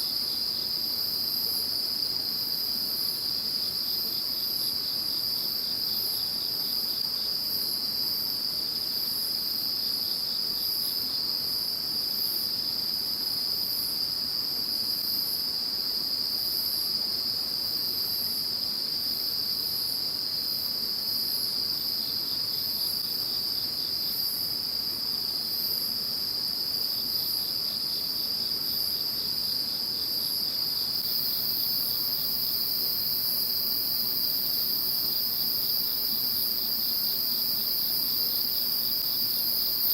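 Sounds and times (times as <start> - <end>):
insect continuous trill: 0.0 - 39.9
insect high steady trill: 14.9 - 39.9.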